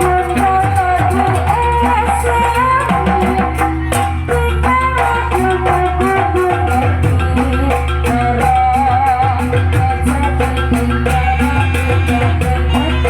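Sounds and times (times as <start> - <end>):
drumming and percussion: 0.0 - 13.0.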